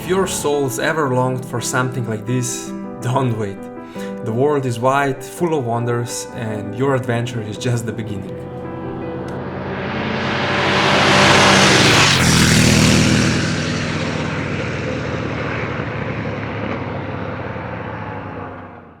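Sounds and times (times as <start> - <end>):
motorcycle engine passing: 0.0 - 0.7, 8.4 - 19.0.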